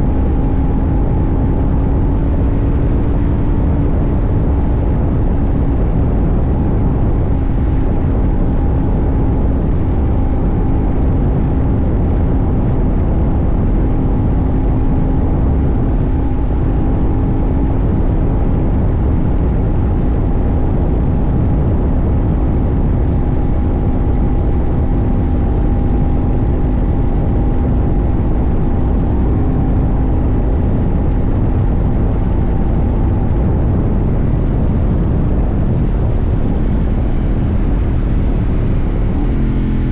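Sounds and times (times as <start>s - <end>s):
motorcycle engine cruising: 0.0s - 39.9s
wind and road rumble: 0.0s - 39.9s.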